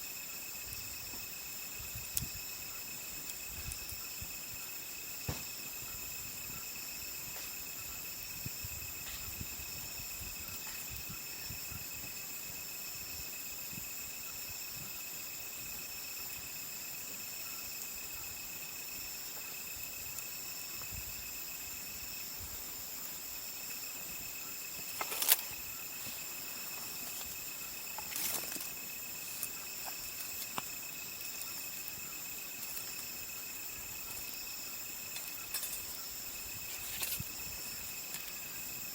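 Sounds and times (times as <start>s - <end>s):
insects chirring: 0.0s - 38.9s
campfire crackling and popping: 26.8s - 36.0s.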